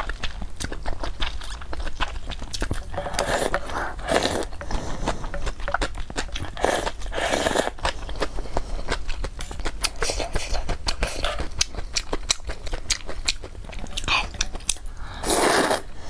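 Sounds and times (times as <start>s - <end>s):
wet chewing with mouth clicks: 0.0s - 16.0s
sipping broth from spoon: 2.7s - 8.0s.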